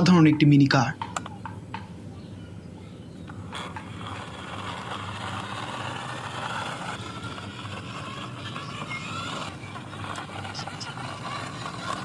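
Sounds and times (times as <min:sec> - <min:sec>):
vehicle engine running: 0:03.1 - 0:12.0.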